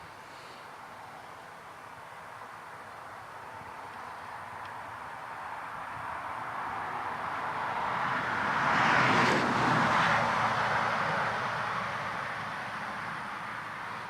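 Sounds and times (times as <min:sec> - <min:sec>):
vehicle passing by: 0:05.6 - 0:14.0.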